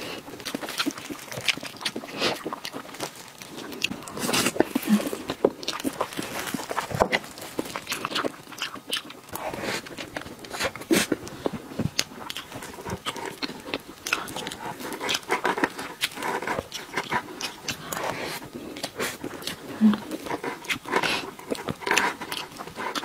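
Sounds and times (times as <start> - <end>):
wet chewing and lip-smacking: 0.0 - 23.0.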